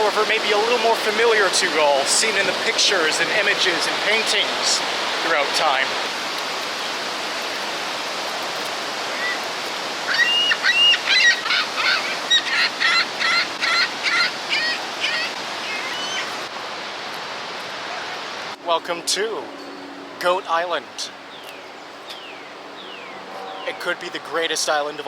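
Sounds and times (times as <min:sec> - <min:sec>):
waterfall roaring: 0:00.0 - 0:19.3
bird calling rapidly: 0:10.1 - 0:16.5.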